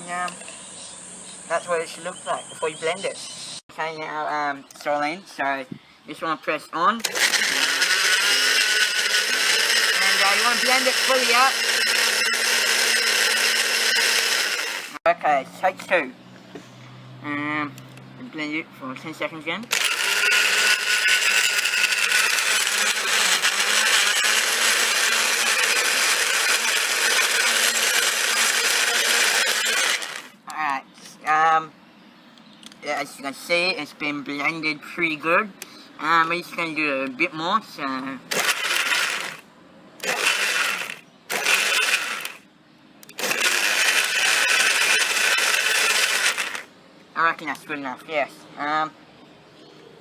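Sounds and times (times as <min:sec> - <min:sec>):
blender running: 0:07.0 - 0:15.0, 0:19.7 - 0:30.4, 0:38.3 - 0:39.4, 0:40.0 - 0:42.4, 0:43.1 - 0:46.7.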